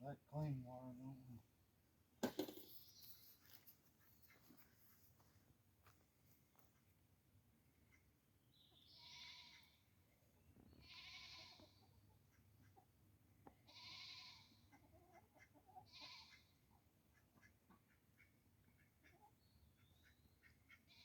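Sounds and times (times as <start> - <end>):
goat bleating: 8.9 - 9.7, 10.8 - 11.8, 13.7 - 14.6, 15.8 - 16.4.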